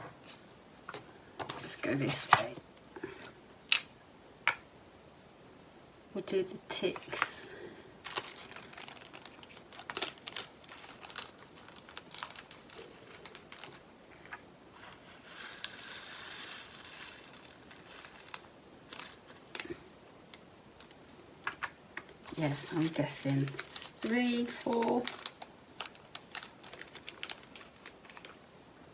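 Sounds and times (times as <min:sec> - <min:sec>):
plastic bags crinkling: 0:08.0 - 0:13.8, 0:16.6 - 0:19.9, 0:22.2 - 0:28.4.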